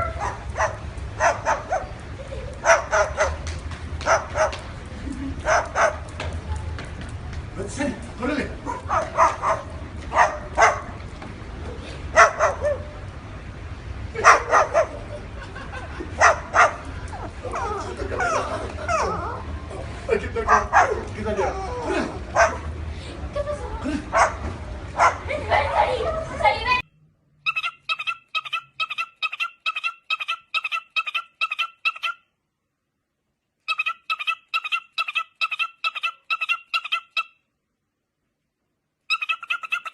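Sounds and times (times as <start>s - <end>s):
dog barking: 0.0s - 1.9s, 2.6s - 3.4s, 4.0s - 4.6s, 5.5s - 6.0s, 8.7s - 10.9s, 12.2s - 12.9s, 14.2s - 15.0s, 16.2s - 16.8s, 20.5s - 21.6s, 22.4s - 22.7s, 24.1s - 24.4s, 25.0s - 25.2s
bird repeating double-note calls: 27.5s - 32.3s, 33.7s - 37.4s, 39.1s - 39.9s.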